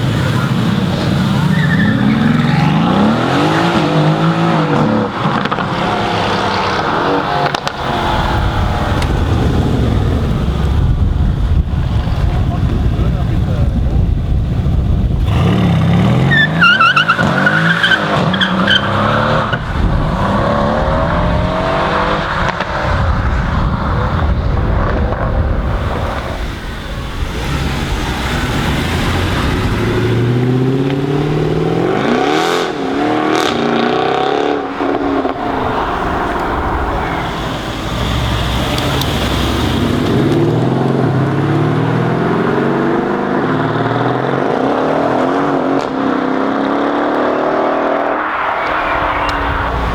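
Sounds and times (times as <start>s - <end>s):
tyres squealing: 0.0s - 9.0s, 16.1s - 19.7s
car engines revving hard: 0.0s - 49.9s.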